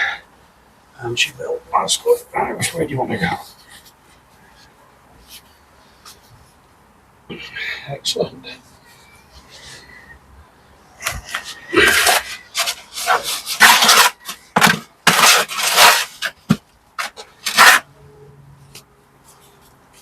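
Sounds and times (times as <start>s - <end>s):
trowel scraping mortar: 11.0s - 17.9s.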